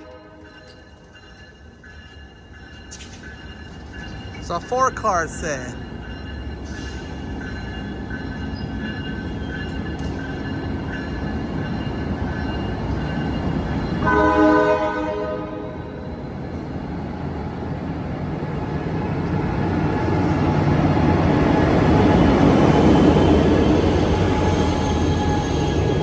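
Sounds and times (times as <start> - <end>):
train horn blast: 0.0 - 0.6, 14.0 - 16.0
train cars rolling past: 0.0 - 26.0.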